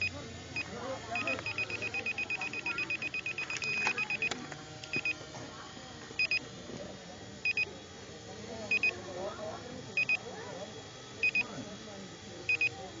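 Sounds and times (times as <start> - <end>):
double beeps: 0.0 - 4.3, 6.2 - 6.4, 8.7 - 9.0, 11.2 - 11.5
fast short high beeps: 0.0 - 4.3.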